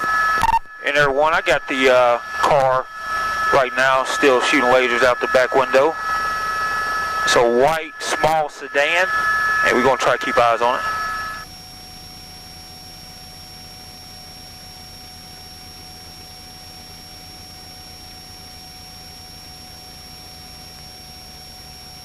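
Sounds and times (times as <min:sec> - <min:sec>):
cockpit intercom hum: 0:00.0 - 0:11.5.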